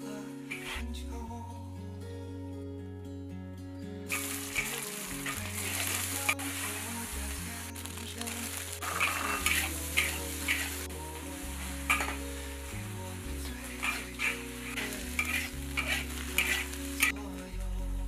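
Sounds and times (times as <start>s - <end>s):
soft background music: 0.0s - 18.0s
food sizzling in hot oil: 4.1s - 7.1s, 7.8s - 12.2s, 13.6s - 17.1s.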